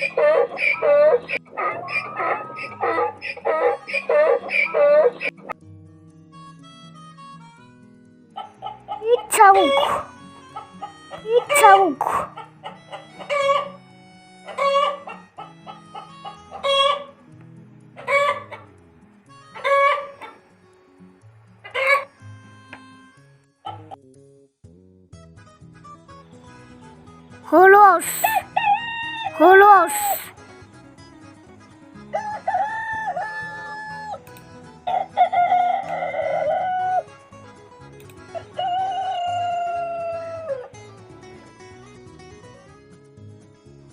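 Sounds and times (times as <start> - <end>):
chicken clucking: 0.0 - 5.3, 10.6 - 13.8, 14.5 - 17.1, 18.0 - 18.7, 19.6 - 20.4, 21.6 - 22.1
rooster crowing: 13.2 - 13.8, 14.5 - 17.1, 18.0 - 18.6, 19.6 - 20.3, 28.6 - 29.4, 32.1 - 34.2, 34.9 - 37.0, 38.4 - 40.7.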